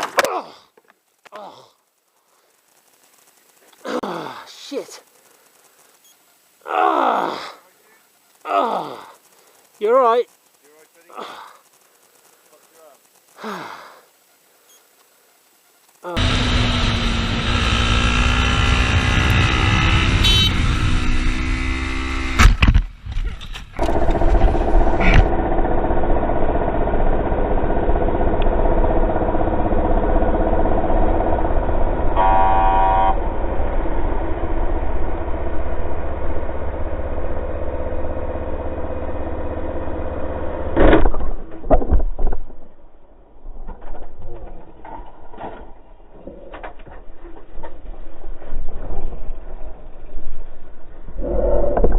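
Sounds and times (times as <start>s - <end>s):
horn blast: 16.2s - 21.3s, 32.2s - 33.3s
road noise: 16.2s - 25.3s
vehicle engine running: 16.2s - 40.8s.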